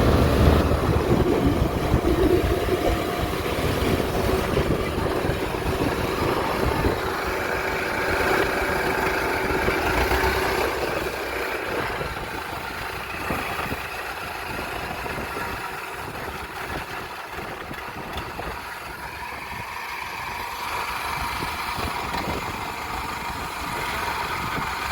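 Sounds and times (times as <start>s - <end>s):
combine harvester diesel engine: 0.0s - 24.9s.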